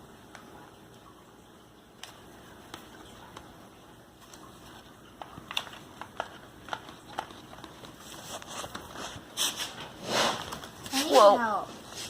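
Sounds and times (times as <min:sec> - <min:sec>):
fingers clicking plastic packaging: 0:04.2 - 0:09.0.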